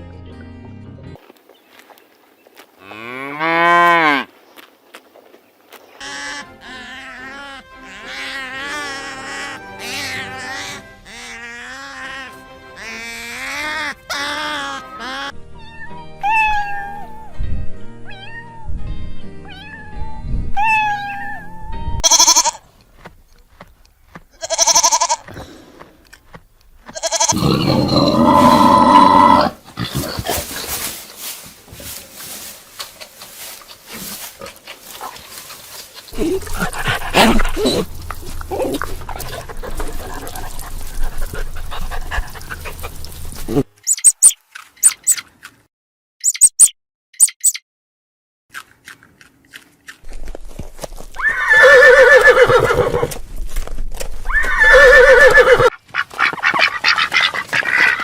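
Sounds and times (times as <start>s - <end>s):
animal calls: 54.3s - 58.0s.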